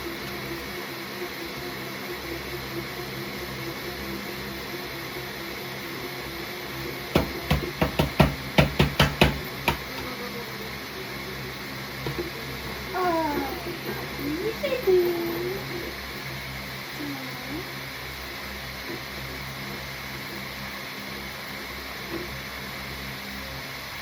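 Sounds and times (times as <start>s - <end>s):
steady background hum: 0.0s - 24.0s
rapid sharp knocks: 7.1s - 10.1s.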